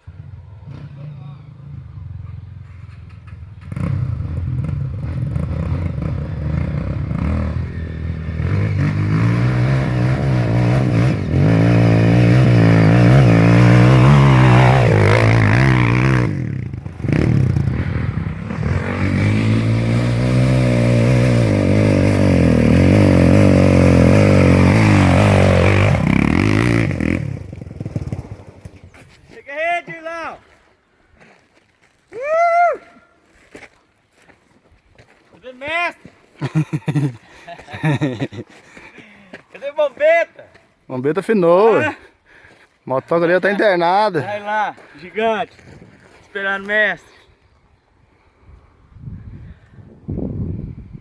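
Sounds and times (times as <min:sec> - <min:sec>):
dirt bike engine revving: 0:00.0 - 0:28.9.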